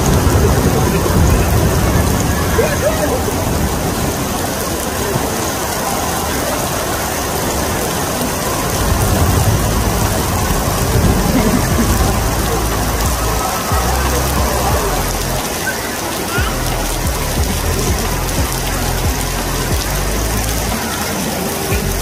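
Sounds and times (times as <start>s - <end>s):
low rumble: 8.7s - 15.4s.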